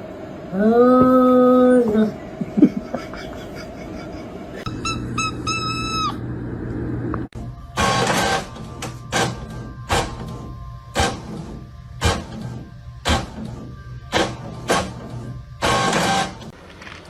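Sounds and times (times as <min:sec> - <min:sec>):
low steady hum: 0:00.0 - 0:15.7
short high-pitched squeaks: 0:04.7 - 0:06.2.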